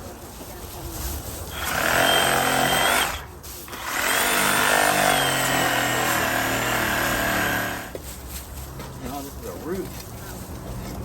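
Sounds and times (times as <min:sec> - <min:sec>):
electric power tool whining: 0:01.6 - 0:07.9.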